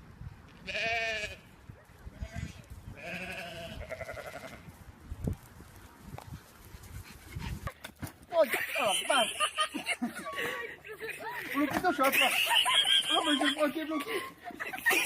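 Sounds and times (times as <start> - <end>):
livestock bleating: 0.6 - 1.5, 2.2 - 4.6.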